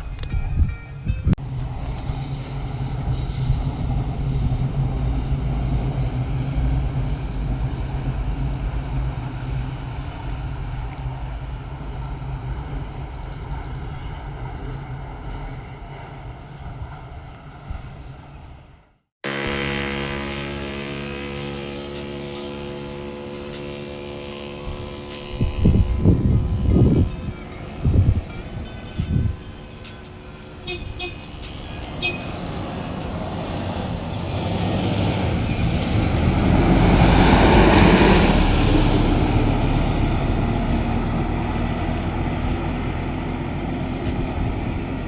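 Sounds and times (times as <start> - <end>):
low vehicle rumble: 22.0 - 45.0.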